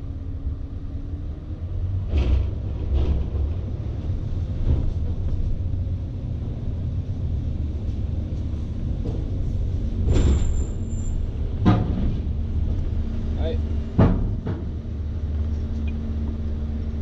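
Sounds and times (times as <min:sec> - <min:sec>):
truck engine rumble inside cab: 0:00.0 - 0:17.0
short clatter: 0:10.0 - 0:13.0.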